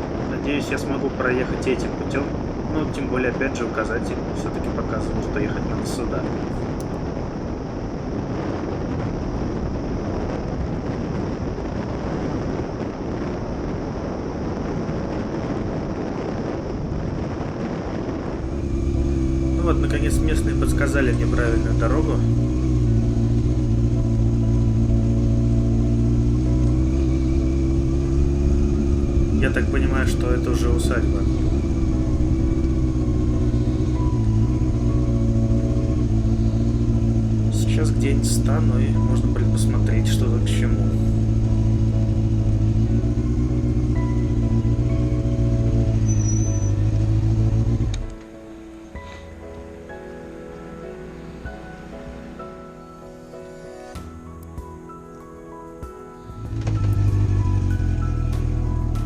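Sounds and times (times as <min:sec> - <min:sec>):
wind buffeting microphone: 0:00.0 - 0:49.1
motorcycle engine running: 0:18.4 - 0:48.2, 0:56.4 - 0:59.0.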